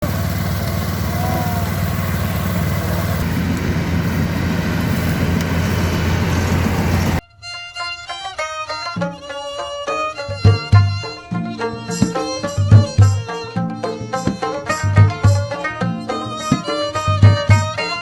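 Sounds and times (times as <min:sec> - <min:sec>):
combine harvester engine: 0:00.0 - 0:07.2
violin-led music: 0:06.1 - 0:18.0.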